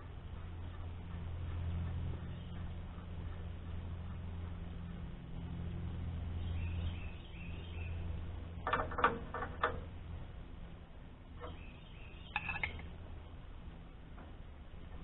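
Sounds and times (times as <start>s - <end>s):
steady low hum: 0.0s - 15.0s
faint bird chirps: 11.4s - 12.9s.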